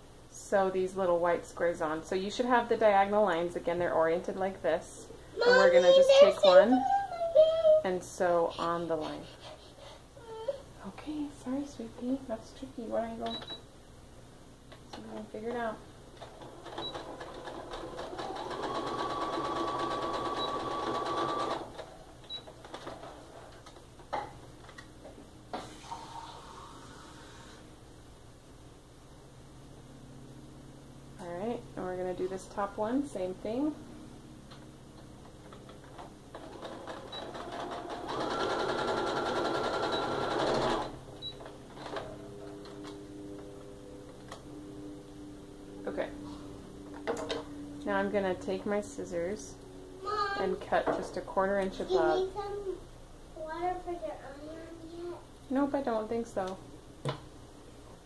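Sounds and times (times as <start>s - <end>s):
faint low hum: 0.0s - 18.6s, 40.8s - 58.0s
sewing machine stitching: 16.2s - 21.9s, 36.3s - 41.0s.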